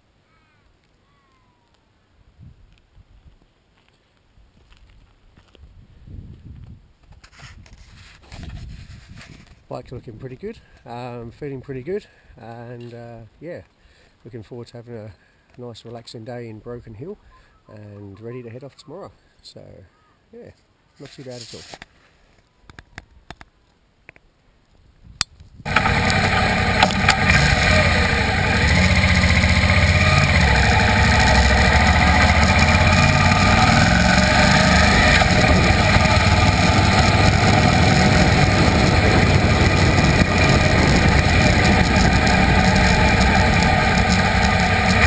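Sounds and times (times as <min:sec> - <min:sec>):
motorcycle engine running: 0:25.7 - 0:45.0.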